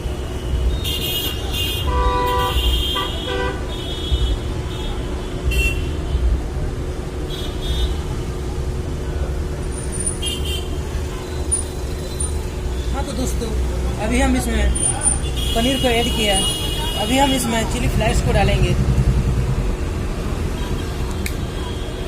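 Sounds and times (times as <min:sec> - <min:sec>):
traffic rumble: 0:00.0 - 0:22.0
vehicle horns honking: 0:00.2 - 0:06.1, 0:10.1 - 0:11.6, 0:14.8 - 0:17.8.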